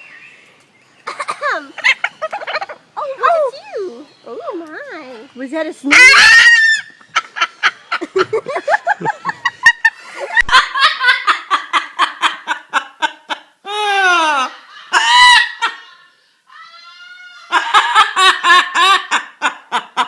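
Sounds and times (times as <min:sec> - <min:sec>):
person laughing: 0:01.1 - 0:02.8, 0:07.2 - 0:16.0, 0:17.5 - 0:20.0.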